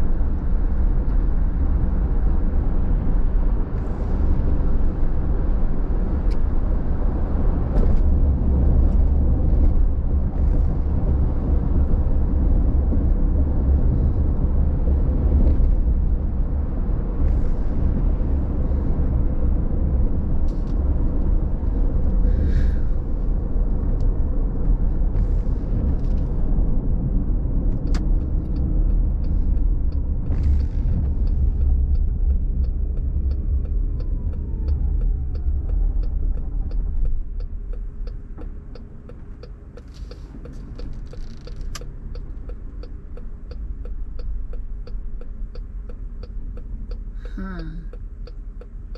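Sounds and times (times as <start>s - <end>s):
road and tyre noise: 0.0s - 48.9s
sharp even ticks: 30.8s - 48.8s.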